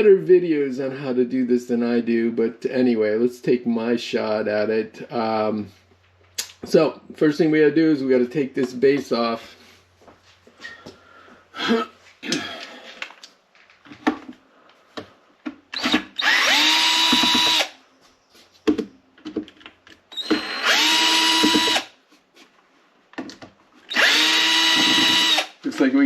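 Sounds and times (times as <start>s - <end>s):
cordless drill running: 15.8s - 17.8s, 20.1s - 21.9s, 23.9s - 25.6s
handling clicks and knocks: 18.6s - 20.1s, 23.1s - 23.6s.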